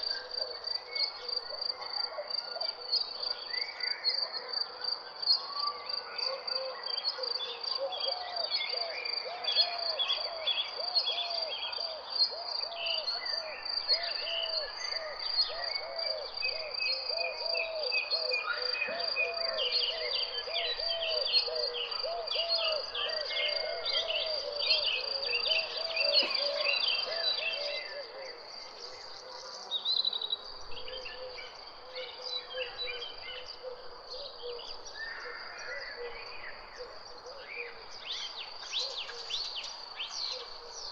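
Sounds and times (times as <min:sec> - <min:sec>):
birds chirping and trilling: 0:12.3 - 0:40.9
lower repeating bird call: 0:14.0 - 0:29.6.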